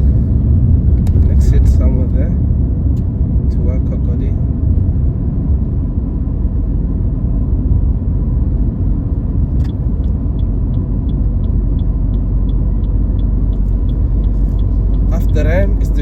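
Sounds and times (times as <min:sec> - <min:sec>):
car engine and tyres rumbling: 0:00.0 - 0:16.0
turn signal ticking: 0:09.0 - 0:16.0.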